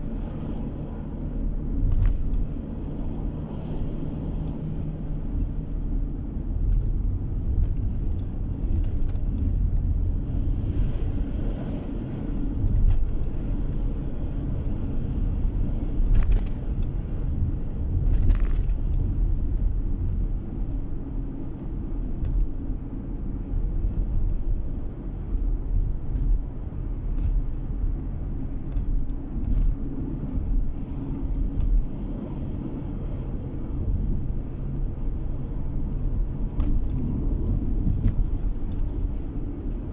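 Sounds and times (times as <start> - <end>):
car cabin road rumble: 0.0 - 39.9
light rattles and clicks: 0.0 - 39.9.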